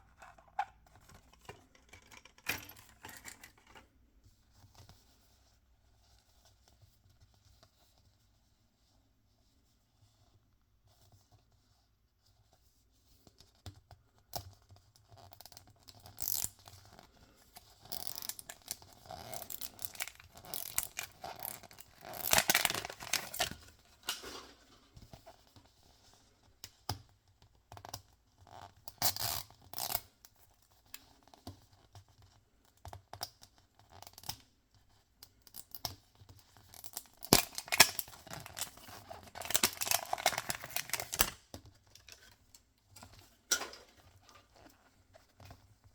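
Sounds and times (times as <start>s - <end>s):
packaging tearing and crinkling: 18.0s - 24.2s, 36.8s - 41.4s.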